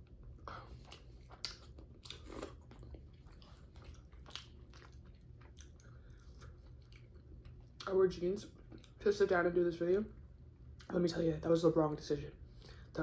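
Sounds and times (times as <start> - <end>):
person chewing food: 0.0 - 9.0.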